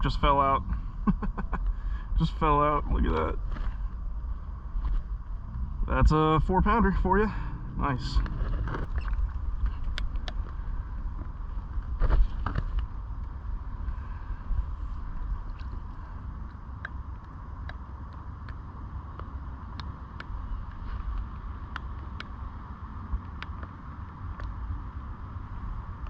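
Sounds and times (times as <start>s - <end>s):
wind rumbling on microphone: 0.0s - 26.0s
light water noise: 7.4s - 21.8s.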